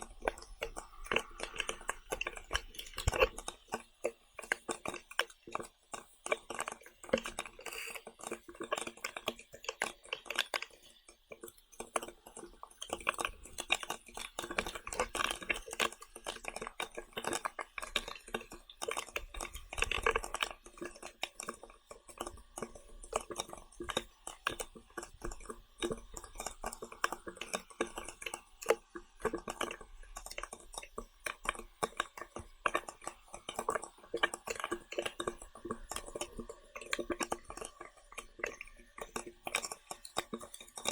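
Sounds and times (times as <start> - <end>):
small clicks and taps: 0.0 - 40.9
person chewing: 0.2 - 10.7, 29.5 - 40.9.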